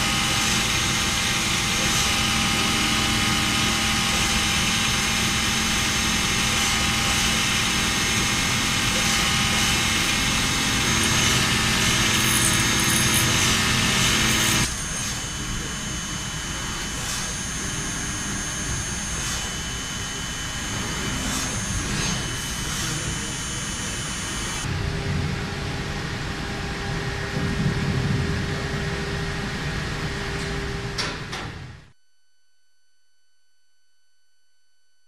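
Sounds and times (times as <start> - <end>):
industrial machine whining: 0.0 - 32.0.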